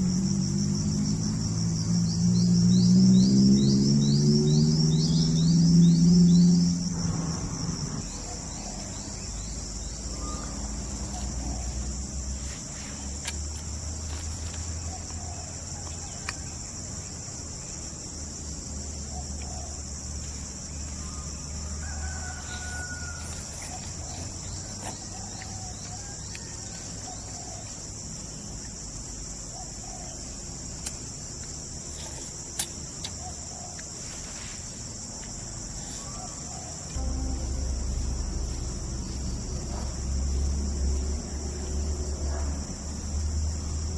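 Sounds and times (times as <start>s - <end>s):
insects buzzing chorus: 0.0s - 43.9s
low rumble: 37.0s - 41.7s.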